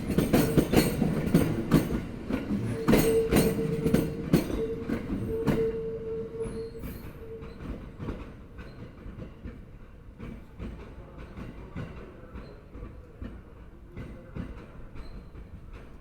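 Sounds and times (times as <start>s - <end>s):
train wheels clattering over joints: 0.0s - 6.0s.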